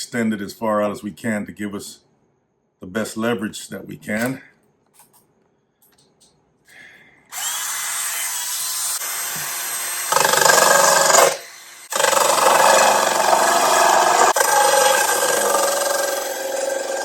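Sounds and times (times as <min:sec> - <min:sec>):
drill spinning saw blade: 0:07.3 - 0:17.0
saw blade cutting wood: 0:07.4 - 0:17.0.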